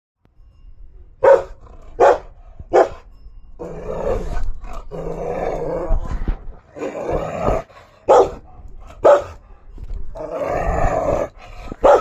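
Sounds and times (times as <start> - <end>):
dog barking: 1.2 - 3.0, 8.1 - 9.4, 11.8 - 12.0.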